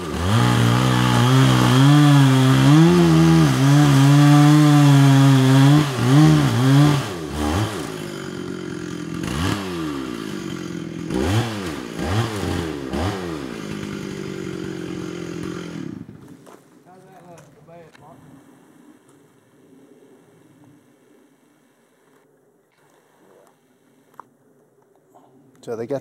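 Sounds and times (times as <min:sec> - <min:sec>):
chainsaw revving and idling: 0:00.0 - 0:17.5.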